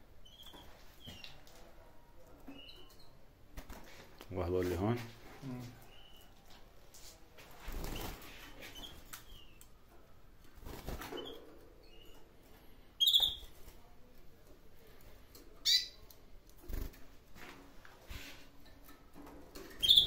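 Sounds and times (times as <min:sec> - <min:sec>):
canaries chirping: 0:00.1 - 0:01.6, 0:02.2 - 0:03.2, 0:05.8 - 0:06.4, 0:07.7 - 0:09.8, 0:10.6 - 0:13.6, 0:15.6 - 0:16.2, 0:19.1 - 0:20.0.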